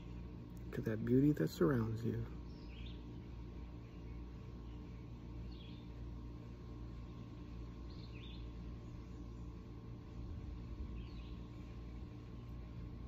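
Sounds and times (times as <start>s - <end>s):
low background rumble: 0.0s - 13.0s
bird chirp: 2.0s - 6.3s, 6.9s - 12.8s.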